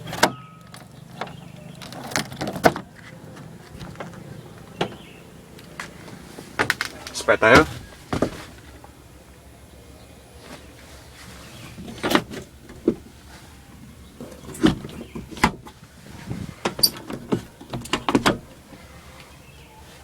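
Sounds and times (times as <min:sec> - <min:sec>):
sharp clunks and clicks: 0:16.6 - 0:18.5.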